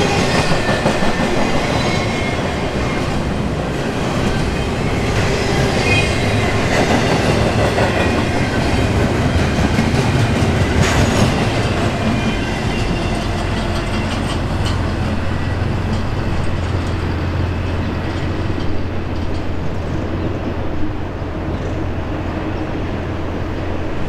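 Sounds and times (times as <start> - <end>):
low rumble of train: 0.0 - 24.0.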